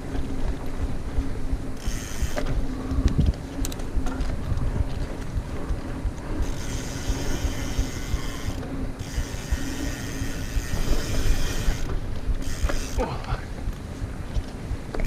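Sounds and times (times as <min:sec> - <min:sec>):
rough rumble of trail riding: 0:00.0 - 0:15.0
bike freehub ratchet buzzing: 0:01.8 - 0:03.9, 0:06.3 - 0:13.0.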